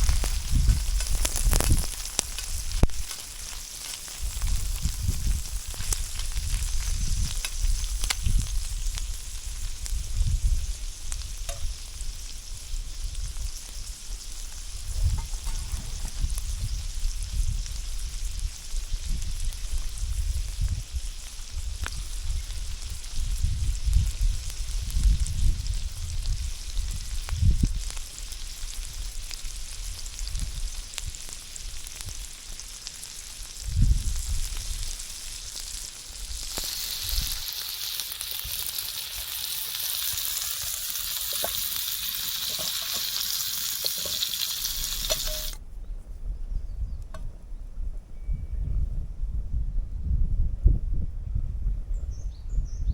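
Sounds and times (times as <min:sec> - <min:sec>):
wind buffeting microphone: 0:00.0 - 0:03.1, 0:04.1 - 0:13.6, 0:14.6 - 0:27.9, 0:33.6 - 0:35.0, 0:36.2 - 0:37.4, 0:44.8 - 0:52.9
food sizzling in a pan: 0:00.0 - 0:45.6.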